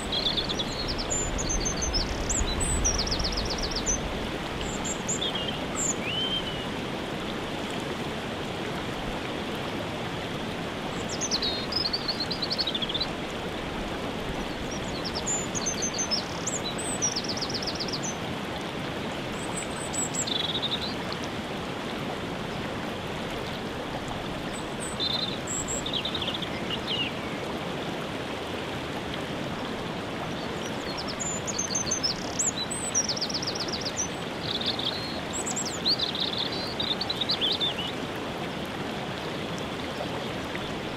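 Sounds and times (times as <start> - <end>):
songbirds trilling and chirping: 0.0 - 6.8, 14.1 - 18.2, 30.2 - 38.0
waterfall rushing: 0.0 - 40.9.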